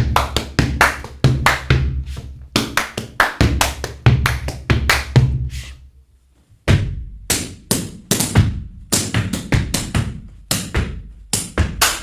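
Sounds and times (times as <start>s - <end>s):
foot stamps on a platform: 0.0s - 1.9s, 6.7s - 12.0s
hands clapping: 0.0s - 5.3s, 11.4s - 12.0s
hands slapping rubber boots: 0.0s - 5.3s, 7.3s - 12.0s.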